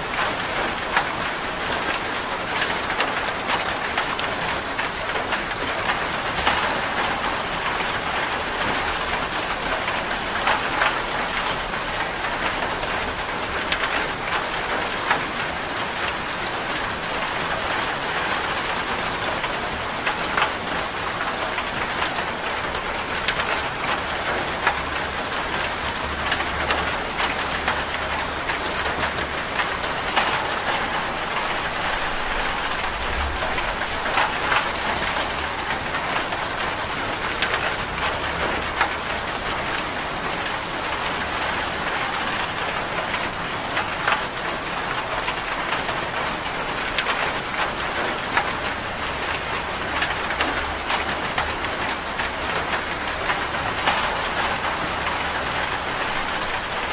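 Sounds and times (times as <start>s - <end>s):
steady rain: 0.0s - 56.9s
raindrop ticks: 23.2s - 49.4s.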